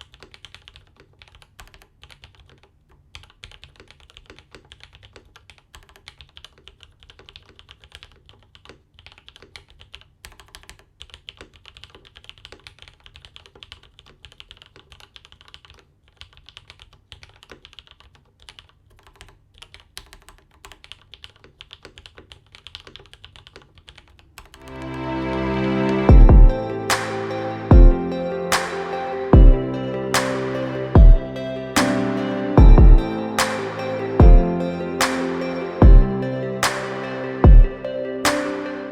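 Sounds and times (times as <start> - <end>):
typing on mechanical keyboard: 0.0 - 24.6
music: 24.6 - 38.9.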